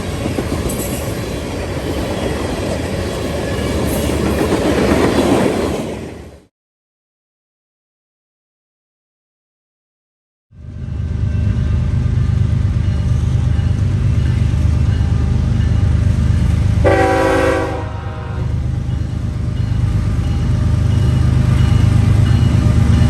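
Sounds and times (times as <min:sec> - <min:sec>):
freight train rumbling: 0:00.0 - 0:06.5, 0:10.6 - 0:23.0
locomotive horn blast: 0:16.8 - 0:18.6.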